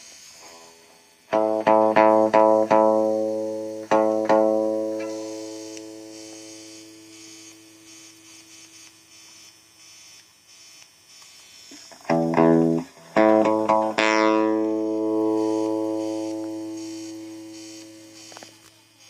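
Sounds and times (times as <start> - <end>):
amplifier hum and hiss: 0.0 - 19.0
electric guitar chord strummed: 1.3 - 6.1, 12.0 - 18.2.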